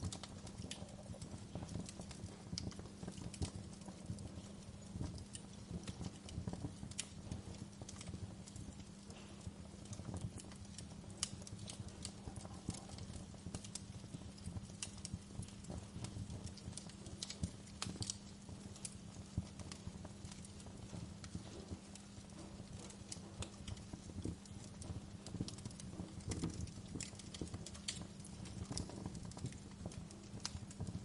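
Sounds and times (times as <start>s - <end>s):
fire crackling and popping: 0.0s - 31.0s
low rumble of flames: 0.0s - 31.0s.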